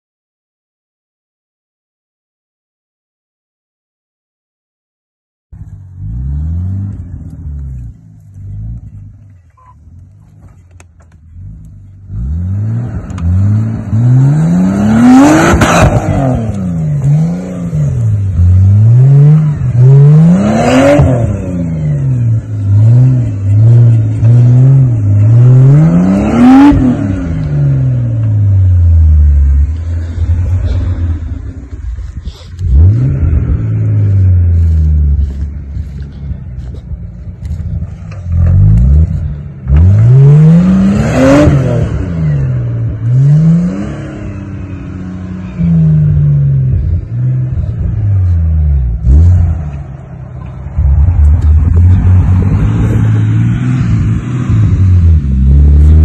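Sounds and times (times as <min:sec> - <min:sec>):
engine revving hard: 0:12.1 - 0:28.1, 0:32.6 - 0:36.0, 0:38.3 - 0:47.9, 0:48.8 - 0:49.8.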